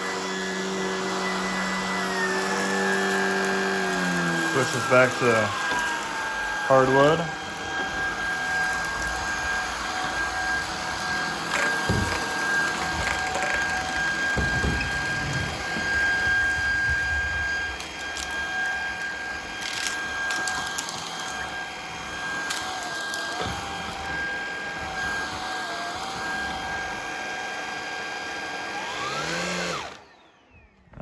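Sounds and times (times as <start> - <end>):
vacuum cleaner motor whine: 0.0 - 31.0
debris clicking and rattling: 11.4 - 21.4.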